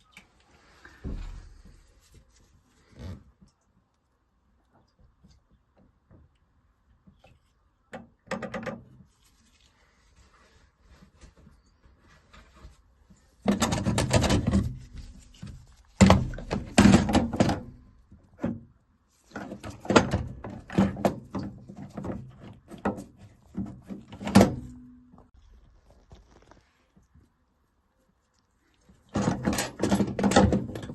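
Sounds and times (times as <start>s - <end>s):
clunks and knocks of parts: 13.4s - 18.7s, 19.3s - 24.9s, 29.1s - 30.9s.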